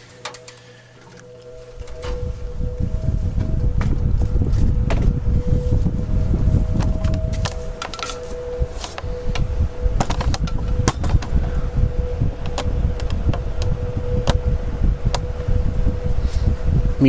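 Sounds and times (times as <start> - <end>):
fan motor humming: 0.0 - 17.0
fan clicking and ticking: 6.8 - 17.0.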